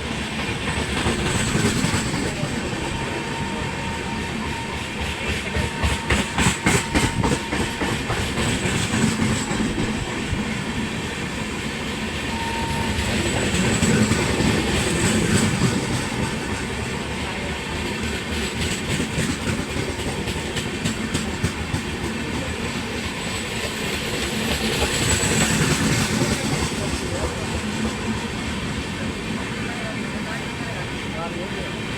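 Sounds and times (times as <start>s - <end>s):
train wheels clattering over rail joints: 0.0s - 3.0s, 4.6s - 11.6s, 13.0s - 16.9s, 17.8s - 28.2s.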